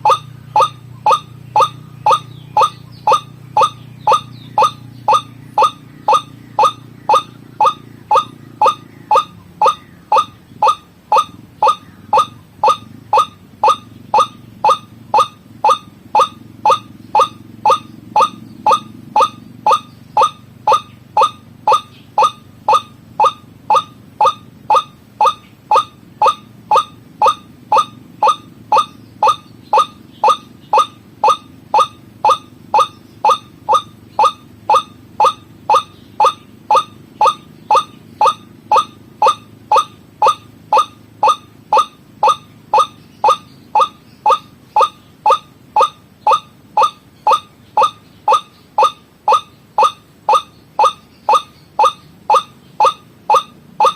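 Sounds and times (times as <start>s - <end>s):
waterhen calling: 0.0s - 53.9s.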